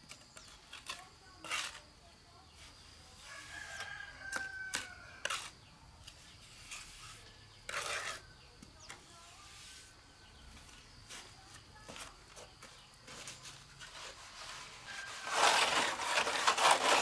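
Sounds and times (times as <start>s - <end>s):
faint rooster crowing: 3.2s - 5.6s, 14.6s - 17.0s
short scraping sounds: 13.1s - 17.0s.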